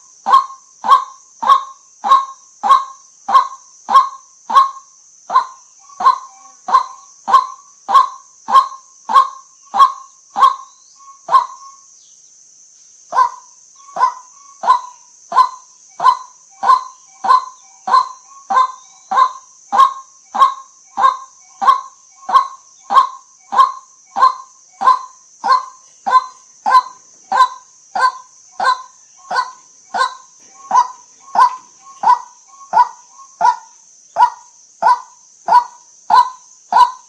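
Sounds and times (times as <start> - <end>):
steady high hiss: 0.0 - 37.0
waterhen kwak call: 13.1 - 37.0.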